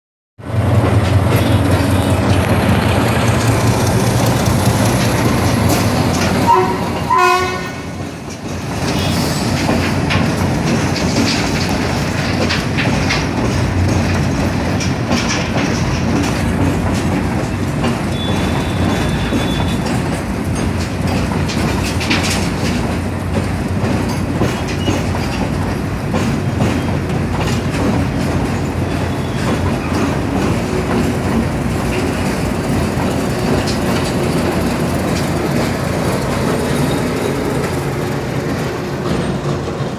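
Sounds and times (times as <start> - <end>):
train rumbling: 0.4 - 39.9
wheels clattering over rail joints: 0.7 - 39.9
train horn: 6.4 - 8.0, 18.1 - 19.8.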